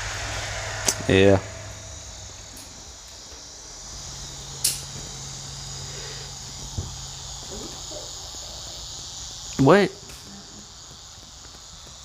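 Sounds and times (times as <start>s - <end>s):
high-pitched insect chorus: 0.0s - 12.0s
sharp click: 4.6s - 5.0s.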